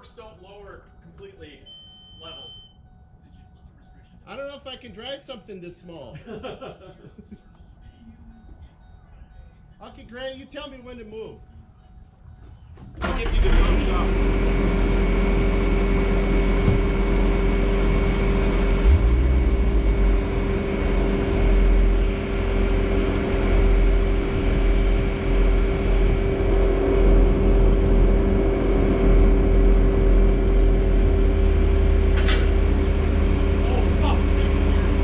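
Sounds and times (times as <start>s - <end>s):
diesel engine running: 13.0s - 35.0s
low thump: 16.6s - 17.0s.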